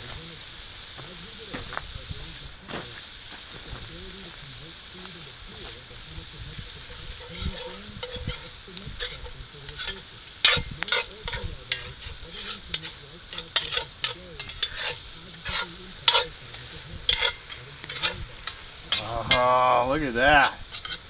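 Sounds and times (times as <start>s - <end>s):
fish sizzling in a pan: 0.0s - 21.0s
utensil scraping and clinking on pan: 4.2s - 21.0s.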